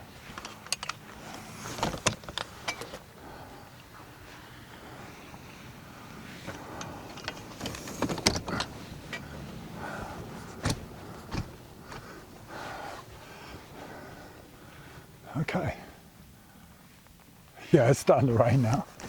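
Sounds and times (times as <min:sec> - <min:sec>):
rustling straps: 0:00.0 - 0:15.1, 0:16.7 - 0:19.0
clicks and knocks of fittings: 0:00.4 - 0:01.0.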